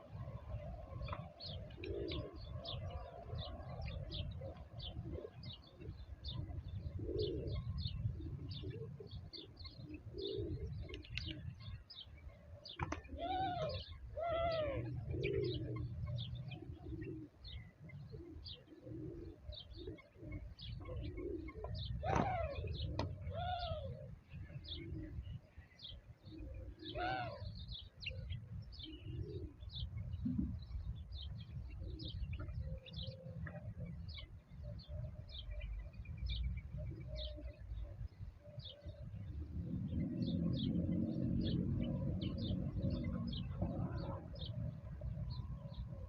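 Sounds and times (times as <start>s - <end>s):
birds cooing: 0.0s - 46.0s
loud arching bird calls: 20.9s - 24.0s.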